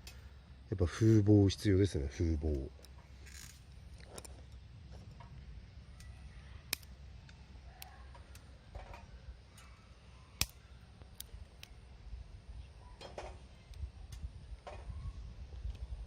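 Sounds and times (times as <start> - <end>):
wood fire crackling: 0.0 - 12.6
wind rumble on microphone: 12.1 - 16.0.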